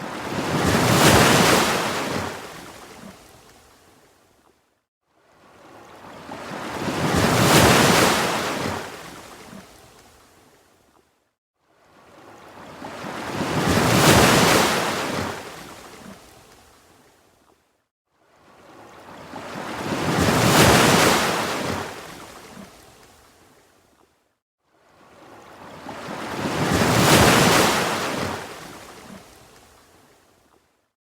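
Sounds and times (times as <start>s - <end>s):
ocean waves washing in: 25.1s - 29.4s.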